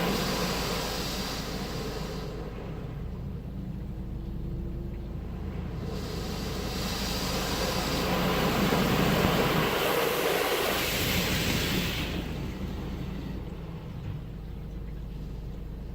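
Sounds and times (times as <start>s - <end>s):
rushing spray or air: 0.0s - 2.6s, 5.8s - 13.2s
car wash machinery hum: 0.0s - 15.9s.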